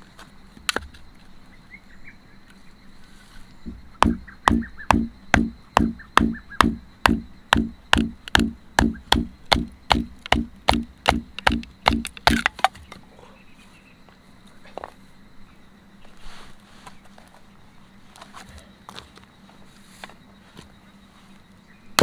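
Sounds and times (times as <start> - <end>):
firewood being split: 3.7 - 12.9.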